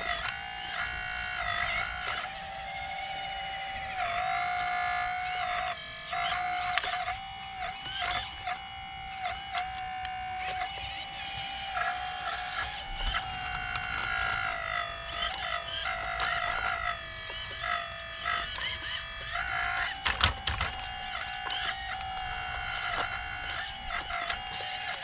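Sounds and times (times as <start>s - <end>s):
hydraulic pump whining: 0.0s - 25.0s
sharp mechanical clicks: 5.2s - 25.0s.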